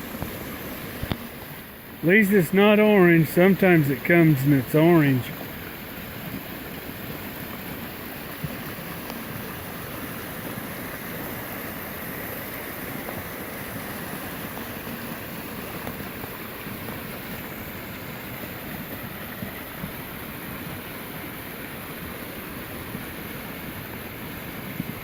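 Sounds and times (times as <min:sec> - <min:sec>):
floodwater rushing: 0:00.6 - 0:18.5.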